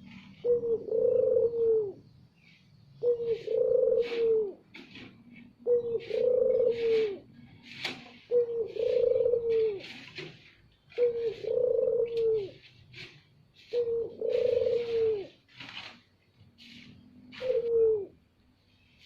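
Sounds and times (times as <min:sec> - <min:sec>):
dove cooing: 0:00.0 - 0:15.5, 0:16.6 - 0:18.3.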